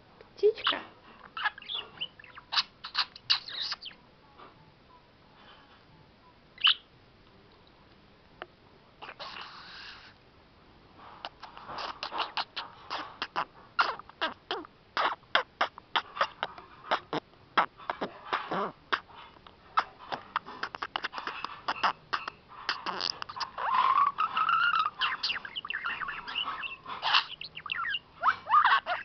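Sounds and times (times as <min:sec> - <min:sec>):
budgerigar chattering: 0:01.4 - 0:04.0, 0:11.2 - 0:19.1, 0:19.8 - 0:29.0.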